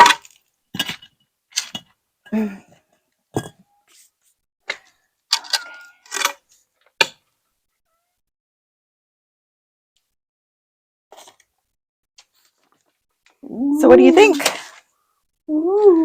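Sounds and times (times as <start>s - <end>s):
objects knocking and clattering: 0.0s - 2.0s, 3.3s - 3.7s.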